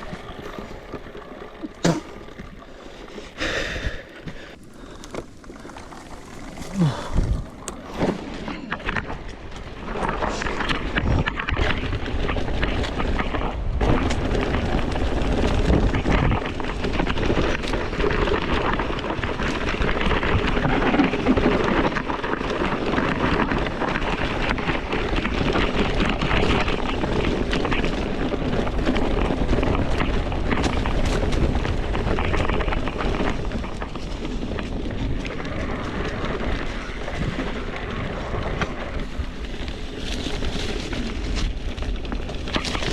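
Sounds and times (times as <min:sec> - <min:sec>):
tyre noise on dirt: 0:00.0 - 0:42.9
bike rattling and knocking: 0:03.3 - 0:42.9
wind rushing over microphone: 0:06.7 - 0:22.3.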